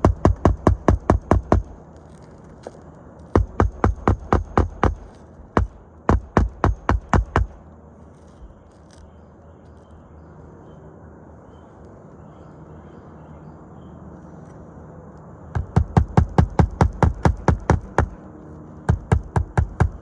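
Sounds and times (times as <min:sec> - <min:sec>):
hammer driving nails into shingles: 0:00.0 - 0:07.6, 0:15.6 - 0:18.2, 0:18.9 - 0:20.0
low steady background hum: 0:00.0 - 0:20.0.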